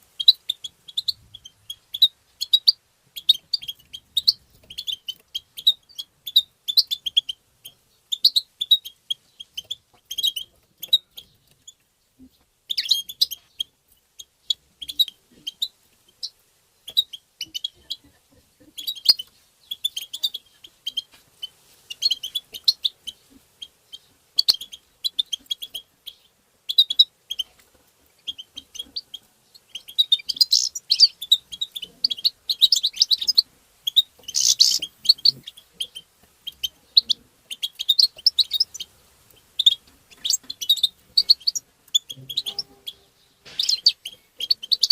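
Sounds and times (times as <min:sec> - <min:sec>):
finch twittering: 0:28.2 - 0:44.9.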